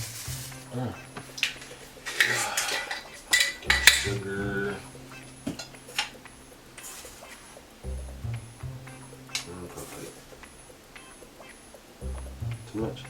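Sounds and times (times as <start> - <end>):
utensils and dishes clinking: 0.0 - 4.4, 5.4 - 7.6.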